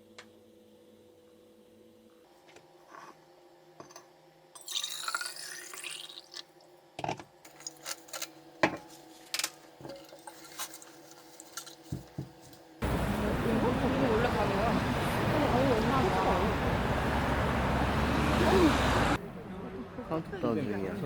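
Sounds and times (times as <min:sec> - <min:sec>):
water pouring into container: 0:04.6 - 0:06.5.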